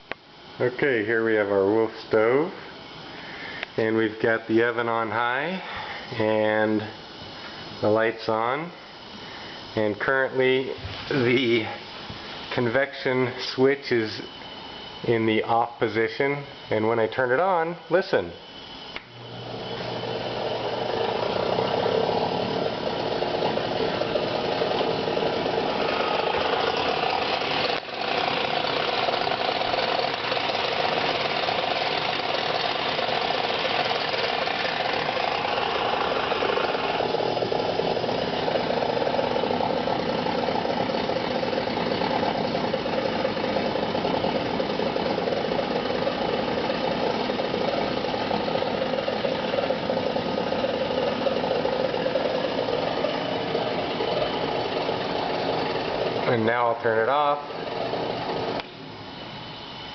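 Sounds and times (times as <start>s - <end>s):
oven convection fan running: 0.0s - 59.9s.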